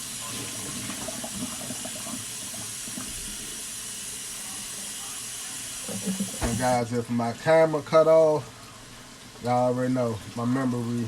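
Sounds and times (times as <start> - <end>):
tap water running into sink: 0.0 - 8.4.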